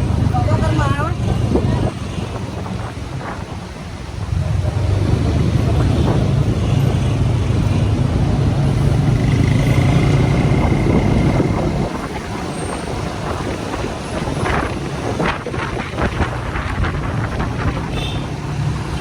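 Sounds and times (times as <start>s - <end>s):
wind and road noise: 0.0s - 19.0s
motorcycle engine running: 8.9s - 12.0s.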